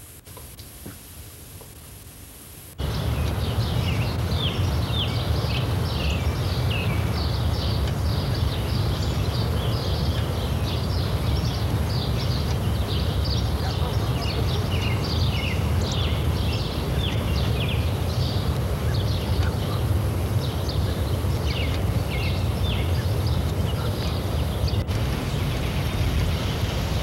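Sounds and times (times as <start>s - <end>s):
birds chirping: 2.8s - 27.0s
low rumble: 24.6s - 27.0s.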